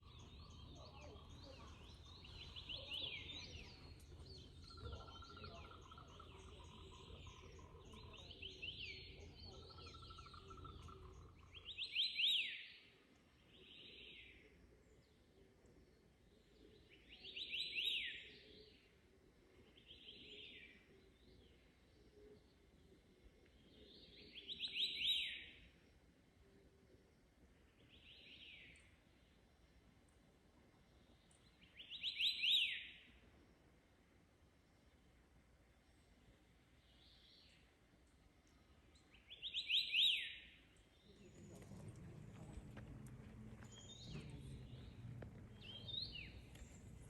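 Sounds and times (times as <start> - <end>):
bird whistling song: 9.8 - 12.7, 24.2 - 25.6, 31.7 - 33.0, 39.1 - 40.6, 43.6 - 47.0
low steady rumble: 41.2 - 47.0.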